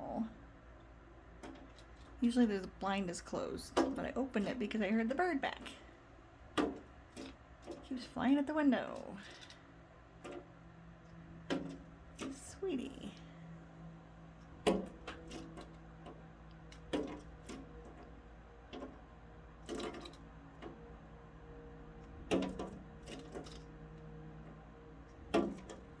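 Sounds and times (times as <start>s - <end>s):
steady low hum: 0.0s - 26.0s
bird pecking at window glass: 6.4s - 7.9s, 9.2s - 12.4s, 14.3s - 21.0s.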